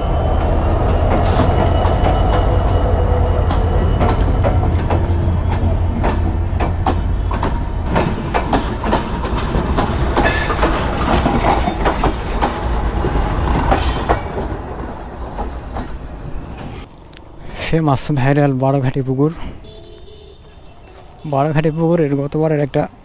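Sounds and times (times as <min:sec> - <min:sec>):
train rumble: 0:00.0 - 0:22.1
train wheels clacking on rails: 0:00.1 - 0:16.7.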